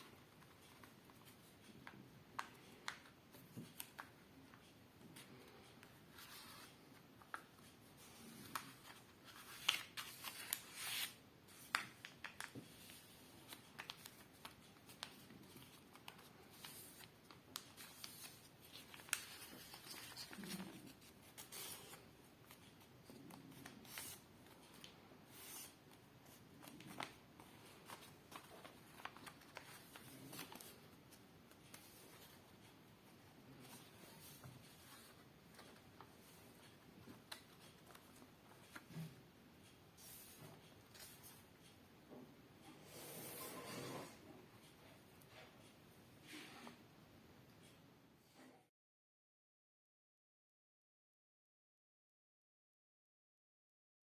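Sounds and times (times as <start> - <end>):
paper being folded and creased: 0.0 - 32.6, 33.5 - 39.2.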